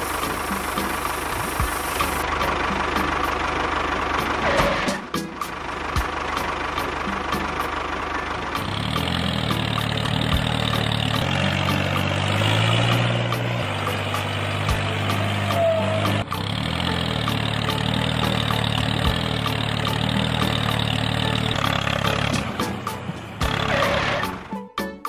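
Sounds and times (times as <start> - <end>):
tractor engine idling: 0.0 - 24.6
background music: 0.0 - 25.0.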